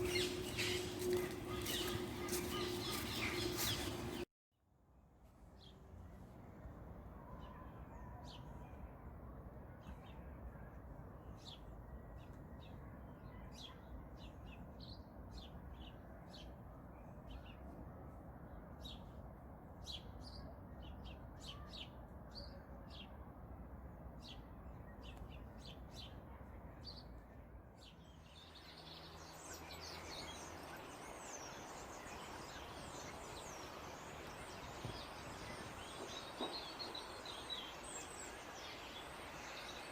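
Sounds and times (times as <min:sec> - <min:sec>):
small birds chirping: 0:00.0 - 0:04.2.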